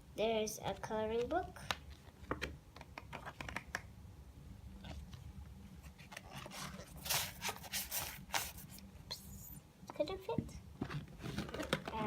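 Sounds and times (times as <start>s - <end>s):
items rustling and scraping in bag: 5.8s - 8.8s.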